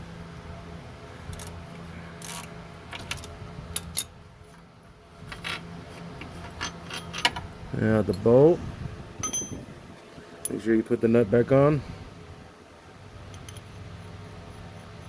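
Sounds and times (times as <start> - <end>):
steady low hum: 0.0 - 15.0
metal hardware and tools clinking: 2.2 - 4.2, 6.4 - 7.4, 9.2 - 9.7.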